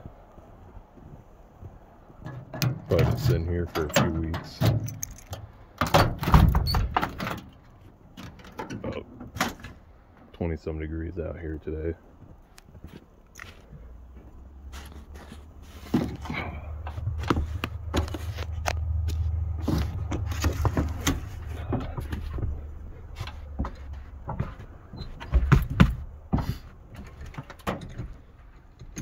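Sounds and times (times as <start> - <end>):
engine rumble: 0.0 - 29.0
loud bumps: 15.0 - 28.2.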